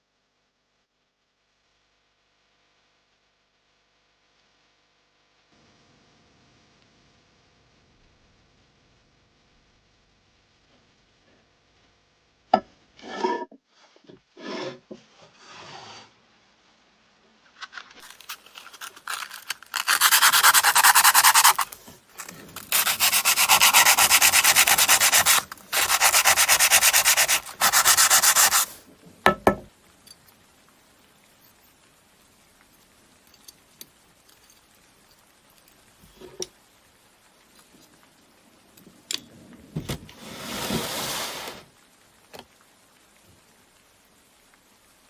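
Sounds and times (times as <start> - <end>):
light scrapes: 13.0 - 16.1, 40.1 - 41.7
abrasive sanding on a knife: 18.9 - 28.8.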